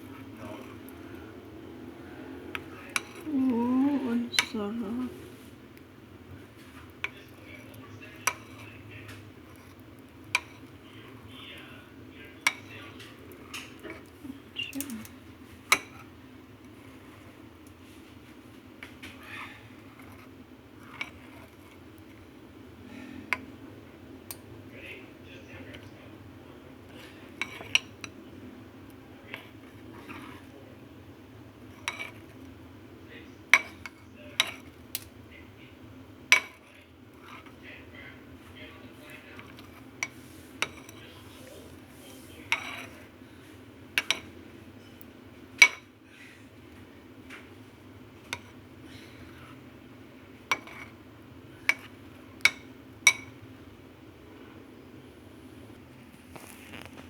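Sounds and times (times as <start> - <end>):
spoon clinking against a dish: 8.1 - 8.8, 12.3 - 14.1, 27.3 - 28.2, 31.8 - 32.3, 36.3 - 36.7, 39.4 - 41.1, 42.5 - 43.0, 44.0 - 44.3, 45.6 - 45.9, 50.5 - 50.9, 51.6 - 53.4.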